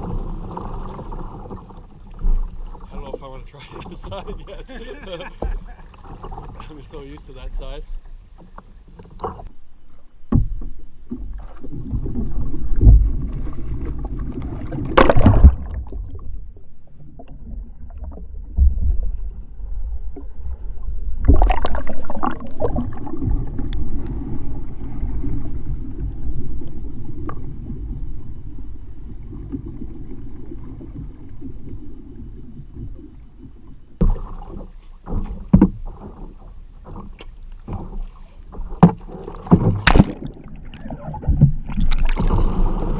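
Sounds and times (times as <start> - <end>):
paddle knocking on hull: 0.0 - 7.2, 10.3 - 11.4, 34.0 - 42.9
water sloshing around kayak: 0.0 - 42.9
loud splashes: 14.5 - 16.0, 38.9 - 42.9.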